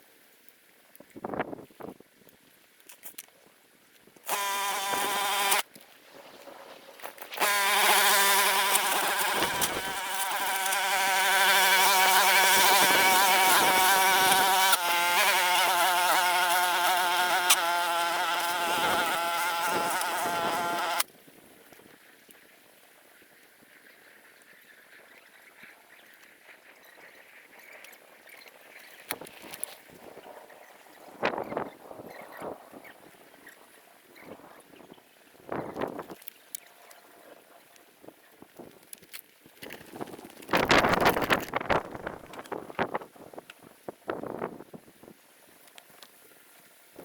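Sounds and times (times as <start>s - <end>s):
grass cutter engine running: 4.3s - 5.7s, 7.2s - 21.1s.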